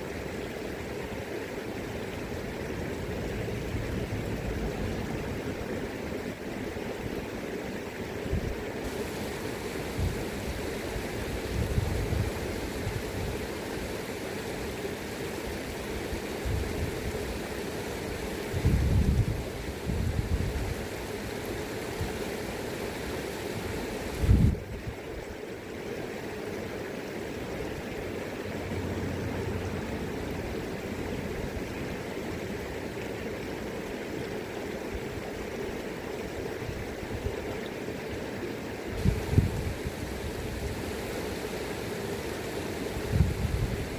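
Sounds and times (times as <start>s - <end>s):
river current rushing: 0.0s - 43.9s
wind rumble on microphone: 11.4s - 13.5s, 18.4s - 20.8s, 24.1s - 25.0s, 39.0s - 40.9s, 42.9s - 43.9s.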